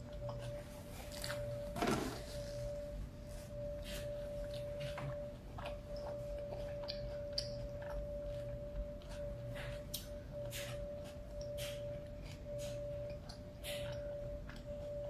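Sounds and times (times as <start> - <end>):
steady humming tone: 0.0 - 15.0
chewing with wet mouth clicks: 4.4 - 15.0.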